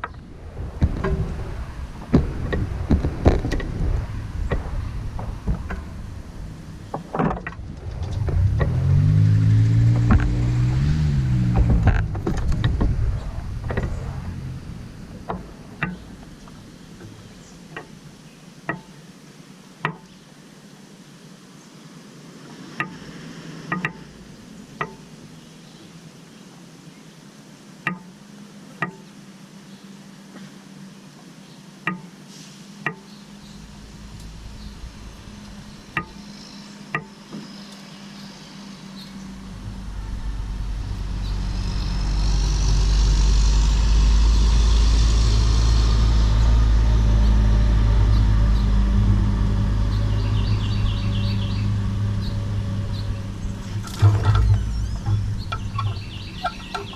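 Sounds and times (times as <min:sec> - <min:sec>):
vehicle passing: 0:00.0 - 0:17.7, 0:22.3 - 0:24.6, 0:33.3 - 0:56.9
sharp knocks: 0:00.8 - 0:06.1, 0:18.7 - 0:19.0, 0:35.9 - 0:36.3.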